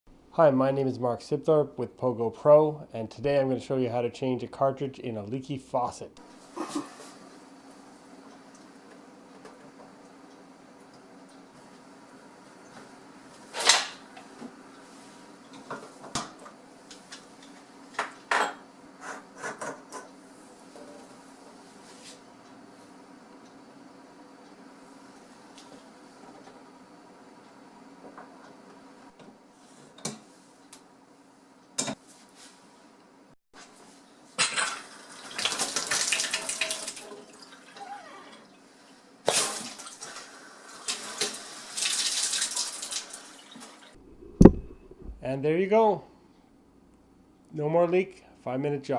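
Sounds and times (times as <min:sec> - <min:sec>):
water running into sink: 0:35.1 - 0:37.1.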